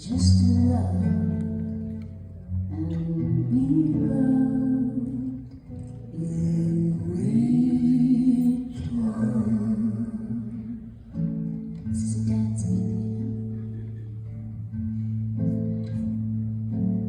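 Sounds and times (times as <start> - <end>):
acoustic guitar: 0.0 - 17.0.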